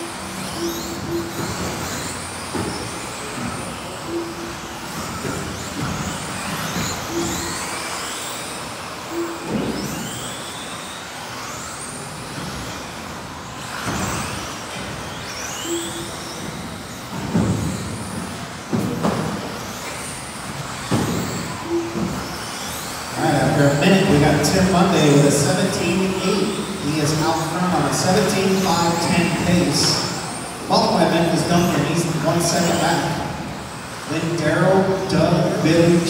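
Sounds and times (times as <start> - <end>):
rc car motors whining: 0.0 - 36.0
short beeps: 4.1 - 4.5, 21.6 - 22.0.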